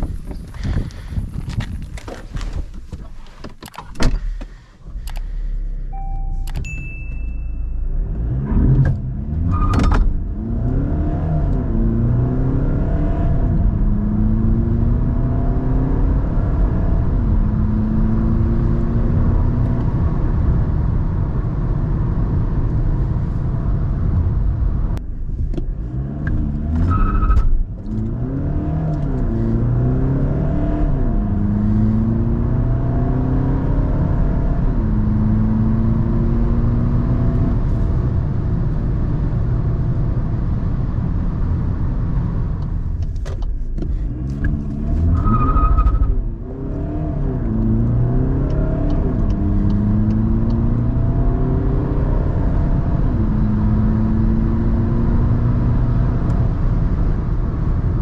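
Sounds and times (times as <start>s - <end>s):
diesel engine accelerating: 27.6s - 58.0s.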